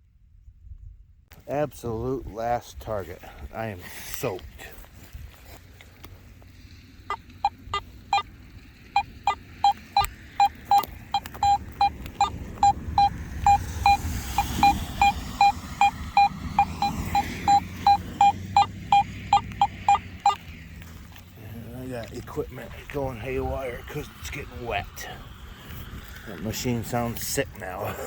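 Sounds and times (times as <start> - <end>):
metal detector beeping: 7.1 - 8.3, 8.9 - 20.5.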